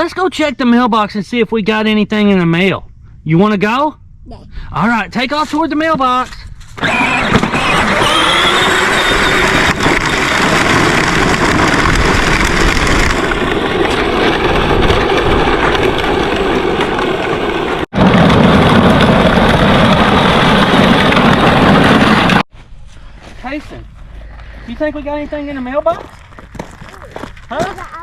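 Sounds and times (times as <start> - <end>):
vehicle driving over rough ground: 5.8 - 22.4, 25.8 - 27.8.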